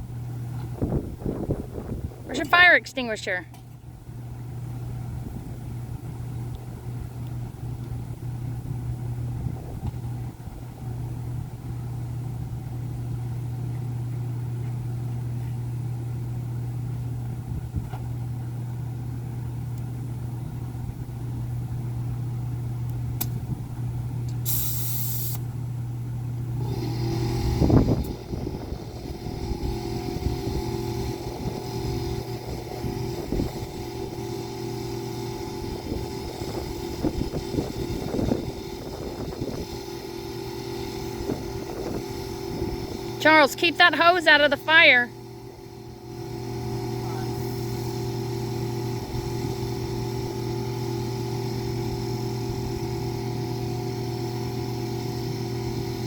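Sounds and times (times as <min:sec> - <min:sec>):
motor humming: 0:16.1 - 0:56.0
brief hiss: 0:24.4 - 0:25.4.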